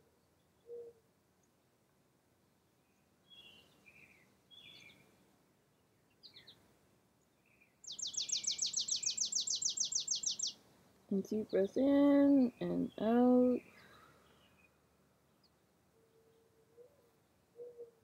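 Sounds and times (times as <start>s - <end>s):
songbirds chirping: 0.0s - 18.0s
bird rapid trill: 7.9s - 10.5s.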